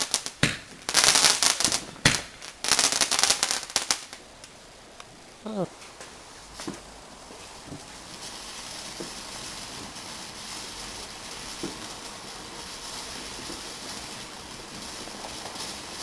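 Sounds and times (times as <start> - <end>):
dull firework thumps: 0.0 - 0.8, 11.6 - 11.8
fireworks hissing: 0.0 - 16.0.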